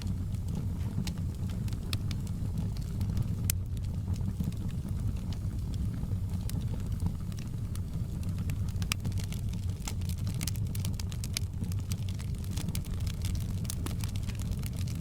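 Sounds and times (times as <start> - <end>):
fire popping and snapping: 0.0 - 15.0
fire rumbling: 0.0 - 15.0.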